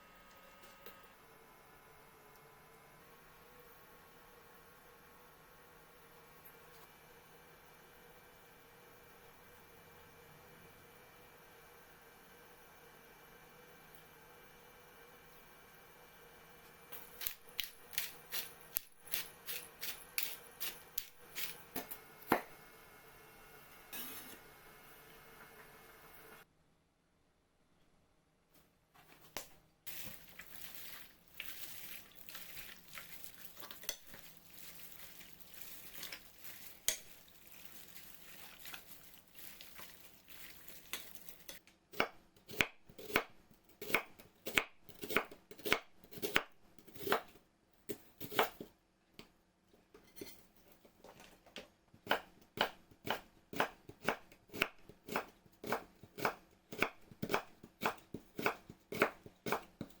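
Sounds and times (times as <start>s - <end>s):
knife chopping on cutting board: 17.1s - 22.6s, 41.9s - 47.3s, 48.2s - 48.7s, 52.1s - 60.0s.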